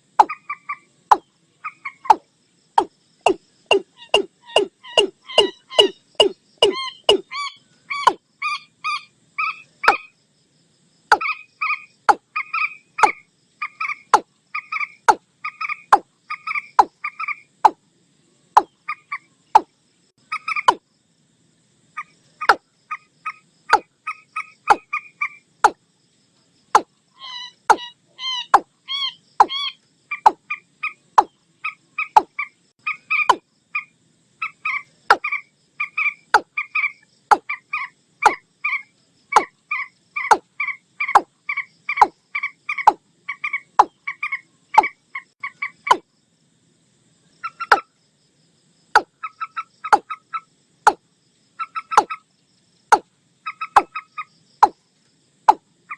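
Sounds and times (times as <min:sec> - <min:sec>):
waterbird croaking calls: 0:03.3 - 0:10.1.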